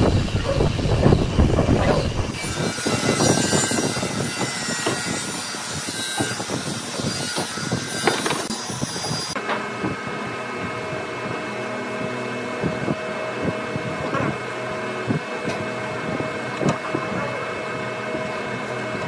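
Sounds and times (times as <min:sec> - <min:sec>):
electric motor humming: 0:00.0 - 0:09.4.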